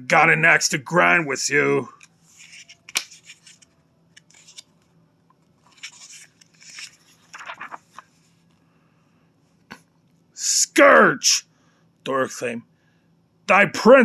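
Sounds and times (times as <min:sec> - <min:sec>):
paper rustling: 0:02.3 - 0:04.7, 0:05.6 - 0:08.3.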